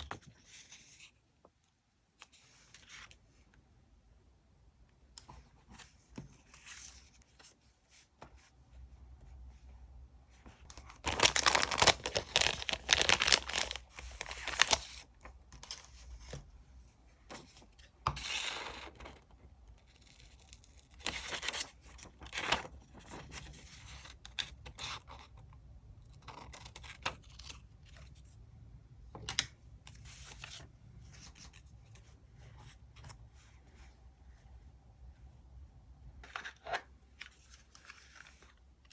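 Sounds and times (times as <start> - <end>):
paper tearing and rustling: 11.0 - 15.0.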